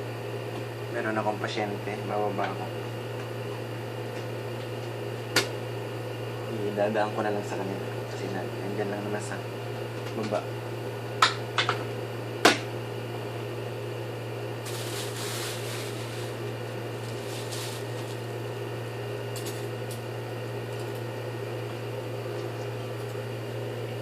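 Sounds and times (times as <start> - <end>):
low mechanical hum: 0.0 - 24.0
rustling hiss: 14.6 - 18.3.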